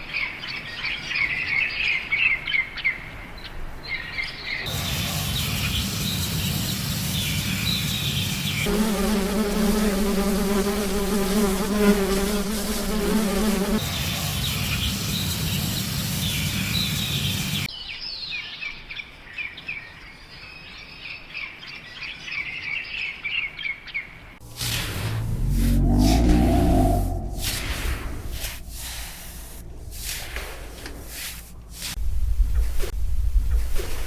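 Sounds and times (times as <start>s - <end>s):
insect-like buzz: 8.5s - 13.9s, 24.4s - 30.6s
light hiss: 24.4s - 32.1s.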